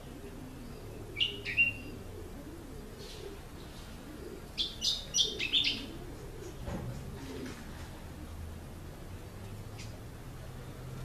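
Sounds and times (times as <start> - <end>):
songbird chirping: 0.0 - 6.7.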